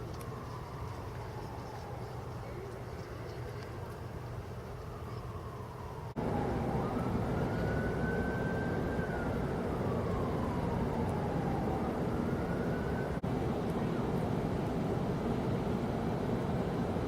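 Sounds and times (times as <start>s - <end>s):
emergency vehicle siren wailing: 0.0s - 2.8s, 3.6s - 14.2s
vehicle noise: 0.0s - 17.0s.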